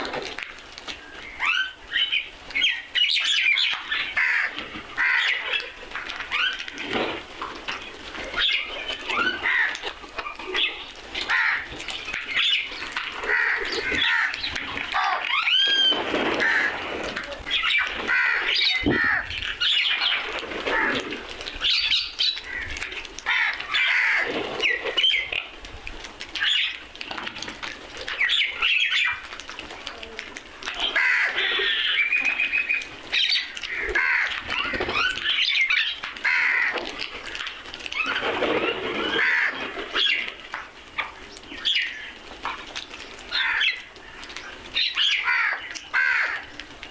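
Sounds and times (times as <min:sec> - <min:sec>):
other birds chirping: 0:00.0 - 0:46.9
crows cawing: 0:03.8 - 0:05.8, 0:09.2 - 0:10.0, 0:11.2 - 0:16.9, 0:17.6 - 0:21.2, 0:22.4 - 0:24.3, 0:30.8 - 0:32.4, 0:33.4 - 0:35.1, 0:35.8 - 0:37.3, 0:39.0 - 0:40.2, 0:43.3 - 0:44.2, 0:44.9 - 0:46.6.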